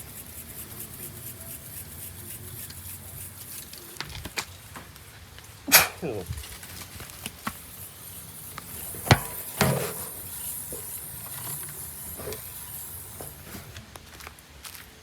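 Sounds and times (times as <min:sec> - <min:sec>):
high-pitched hiss: 0:00.0 - 0:13.9
sharp knocks and clunks: 0:08.6 - 0:12.5.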